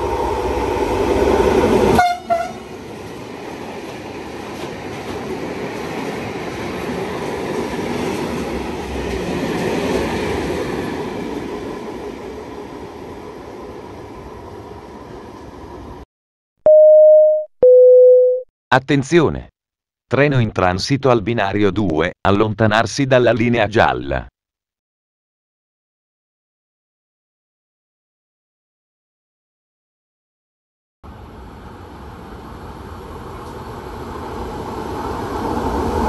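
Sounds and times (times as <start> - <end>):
train passing: 0.0 - 16.0, 31.1 - 36.0
train horn: 1.9 - 2.6.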